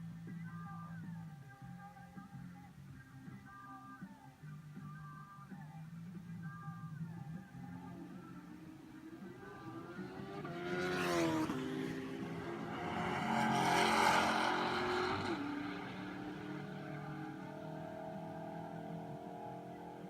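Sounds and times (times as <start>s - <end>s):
car engine revving: 9.0s - 20.0s.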